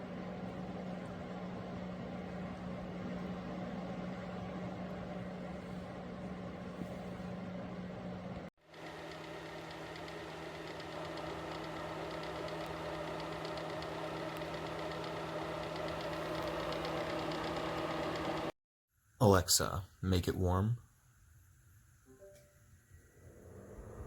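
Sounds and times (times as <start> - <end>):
space heater fan hum: 0.0 - 18.6, 22.4 - 24.0.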